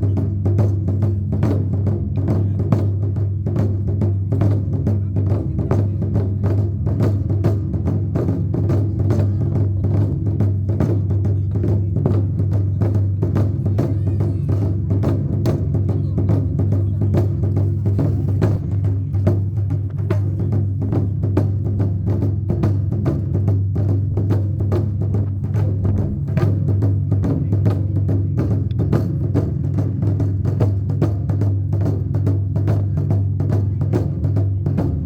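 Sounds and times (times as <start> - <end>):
taiko drums beating: 0.0 - 35.0
continuous low boom: 25.6 - 26.6.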